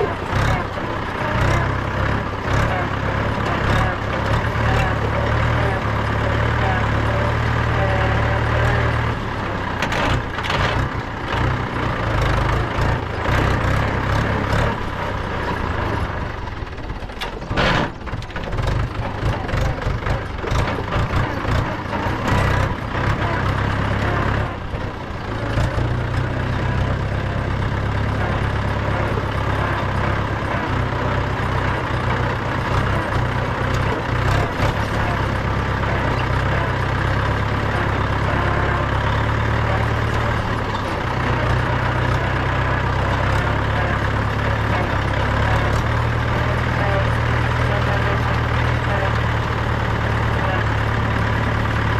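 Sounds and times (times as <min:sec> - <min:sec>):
tractor diesel engine running: 0:00.0 - 0:51.9
knocks and rattles: 0:17.0 - 0:51.9.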